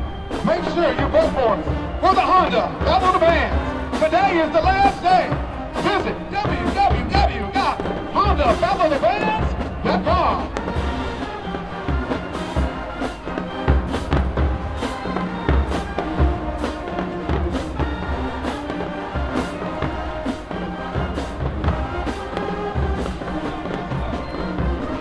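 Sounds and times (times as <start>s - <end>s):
marching band playing: 0.0s - 25.0s.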